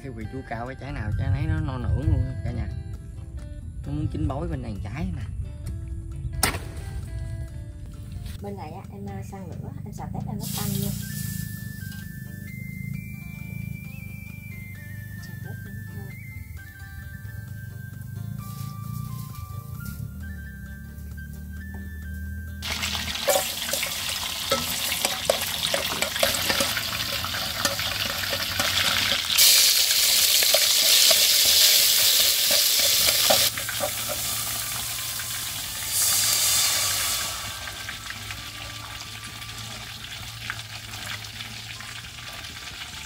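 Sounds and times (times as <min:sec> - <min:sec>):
garlic and shrimp sizzling in oil: 0:10.4 - 0:12.0, 0:22.6 - 0:43.0
chopsticks tapping against pot: 0:23.3 - 0:29.2.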